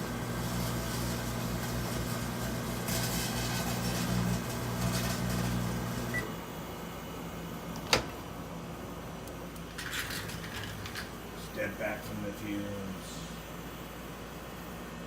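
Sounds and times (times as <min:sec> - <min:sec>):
electrical arcing crackle: 0:00.0 - 0:06.2
microwave oven humming: 0:00.0 - 0:15.0.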